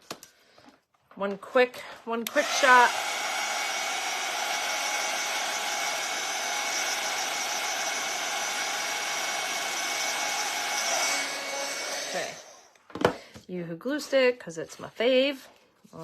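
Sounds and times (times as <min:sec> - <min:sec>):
hot-air tool blowing: 0:02.2 - 0:12.8.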